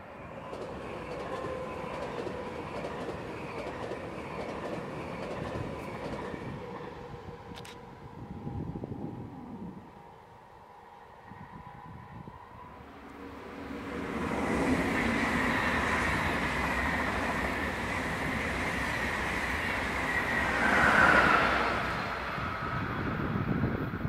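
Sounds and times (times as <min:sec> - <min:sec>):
train wheels rushing on rails: 0:00.0 - 0:07.8, 0:13.1 - 0:24.0.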